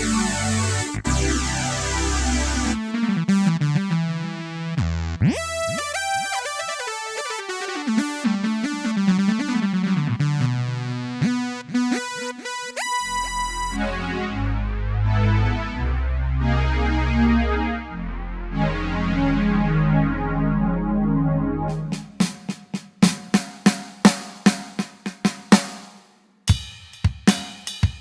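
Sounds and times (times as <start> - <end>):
bass and drum accompaniment: 0.0 - 2.8, 21.6 - 28.0
electronic keyboard melody: 0.0 - 22.3.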